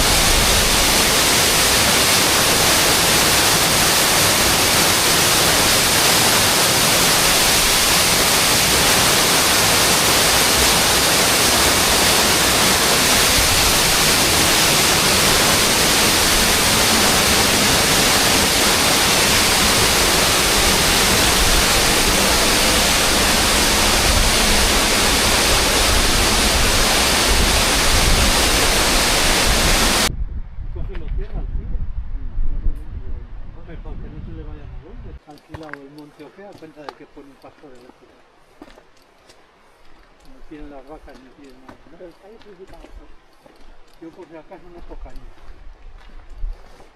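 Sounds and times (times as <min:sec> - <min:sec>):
waterfall rushing: 0:00.0 - 0:30.1
deep low rumble: 0:19.0 - 0:35.2.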